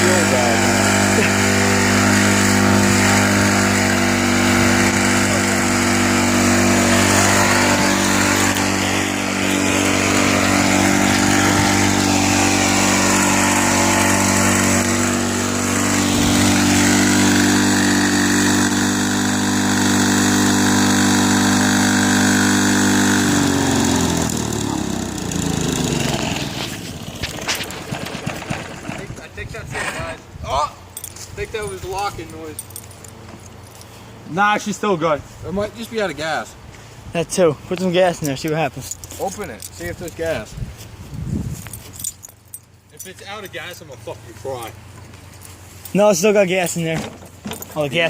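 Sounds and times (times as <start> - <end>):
small go-kart engine running: 0.0 - 29.3.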